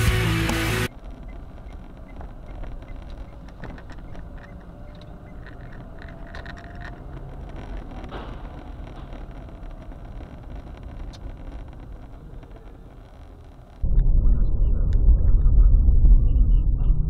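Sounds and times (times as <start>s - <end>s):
road and engine rumble: 0.0s - 14.1s
light clicks and rattles: 0.9s - 13.8s.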